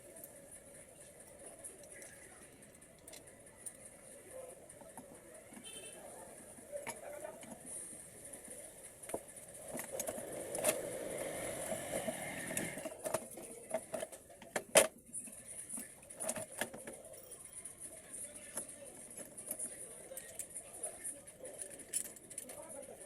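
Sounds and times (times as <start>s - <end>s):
hand tools clicking and clinking: 21.6s - 23.0s.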